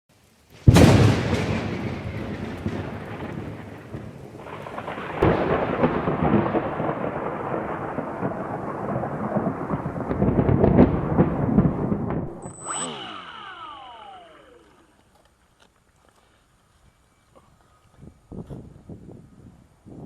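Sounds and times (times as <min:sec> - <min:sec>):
thunder rumbling: 0:00.6 - 0:14.9.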